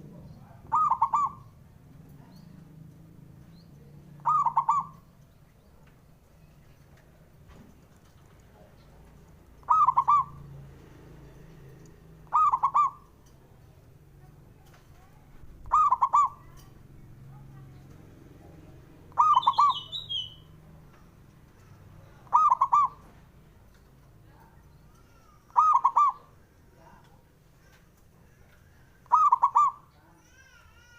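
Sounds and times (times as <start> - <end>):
dove cooing: 0.6 - 1.6, 4.2 - 5.1, 9.6 - 10.5, 12.2 - 13.2, 15.6 - 16.8, 19.1 - 20.2, 22.2 - 23.1, 25.5 - 26.4, 29.0 - 29.9.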